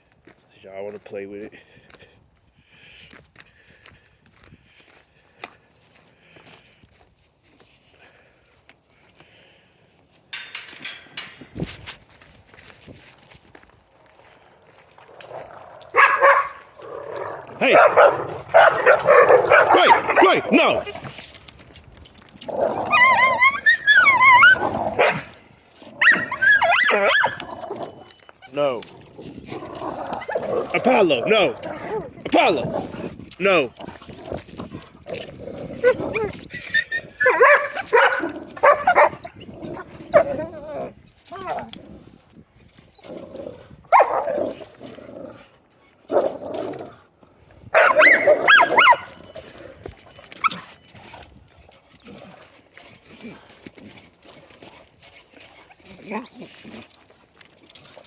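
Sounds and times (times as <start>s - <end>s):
dogs barking and growling: 14.4s - 41.8s, 42.7s - 58.0s
dog whining yelps: 16.0s - 16.6s, 17.6s - 21.0s, 22.5s - 25.3s, 26.0s - 28.6s, 35.8s - 39.5s, 40.1s - 41.7s, 43.9s - 44.4s, 47.7s - 51.2s, 55.5s - 56.5s.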